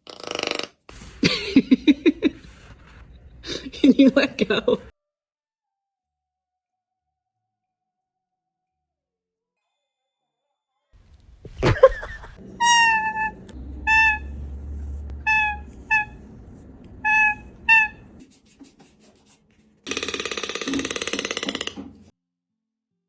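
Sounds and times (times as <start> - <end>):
toucan squeaky calls: 12.4 - 18.2
rapid buzzing rattle: 19.8 - 22.1.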